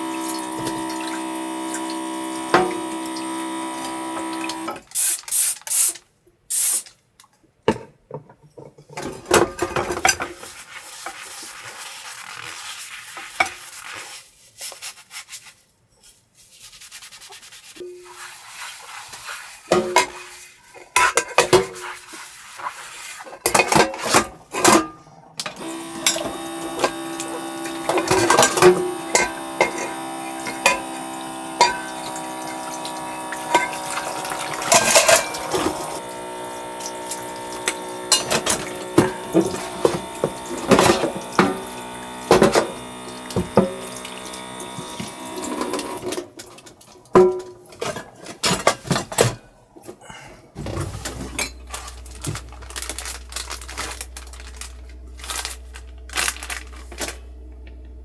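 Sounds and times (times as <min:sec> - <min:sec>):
steady hum: 0:00.0 - 0:04.8, 0:25.5 - 0:46.0, 0:50.6 - 0:58.0.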